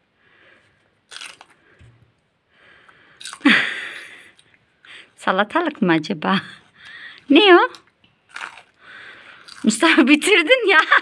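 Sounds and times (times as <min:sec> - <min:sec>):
crisp crunch of biting pepper: 0:01.1 - 0:01.6, 0:03.2 - 0:03.5, 0:07.7 - 0:08.8, 0:09.4 - 0:09.8
wet chewing: 0:06.8 - 0:10.1.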